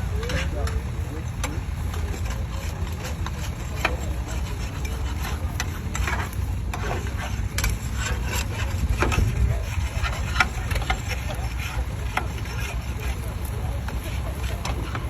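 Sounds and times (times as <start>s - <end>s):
tractor engine rumbling: 0.0s - 15.0s.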